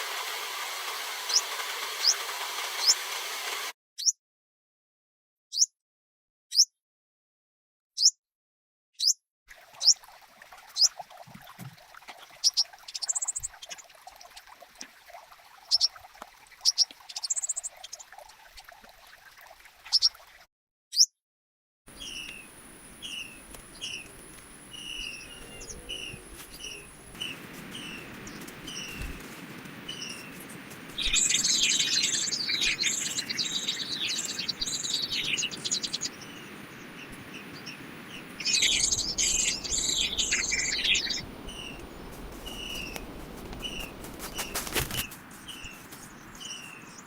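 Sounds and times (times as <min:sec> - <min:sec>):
outdoor hiss: 0:00.0 - 0:03.7, 0:21.9 - 0:47.0
songbirds chirping: 0:21.9 - 0:47.0.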